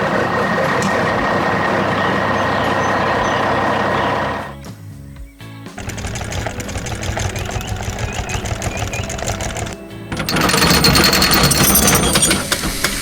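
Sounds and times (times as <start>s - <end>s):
background music: 0.0s - 12.6s
rapid mechanical rattling: 5.8s - 13.0s.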